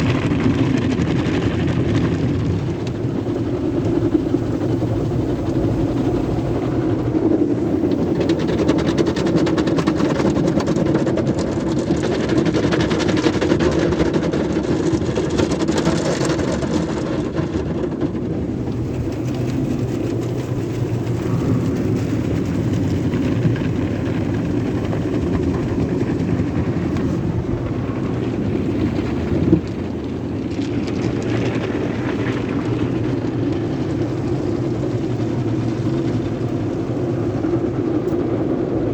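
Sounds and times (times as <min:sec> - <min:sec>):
water and brush noise: 0:01.2 - 0:11.0, 0:18.6 - 0:37.6
machine hum: 0:02.0 - 0:10.7, 0:18.4 - 0:29.5.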